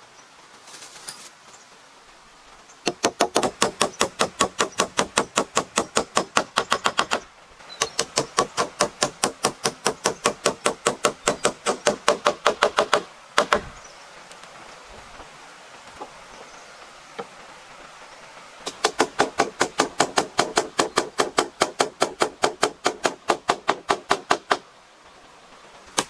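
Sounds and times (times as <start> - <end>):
rapid hammering: 2.9 - 7.2, 7.8 - 13.7, 18.6 - 24.6.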